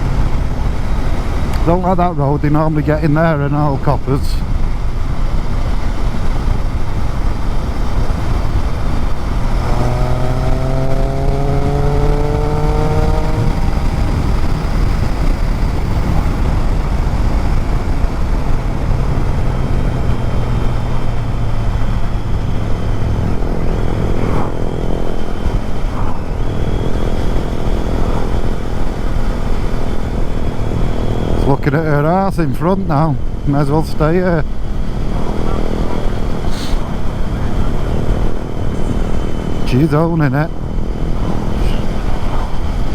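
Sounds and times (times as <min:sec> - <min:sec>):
motorcycle engine: 0:00.0 - 0:42.9
wind rush over microphone: 0:00.0 - 0:42.9.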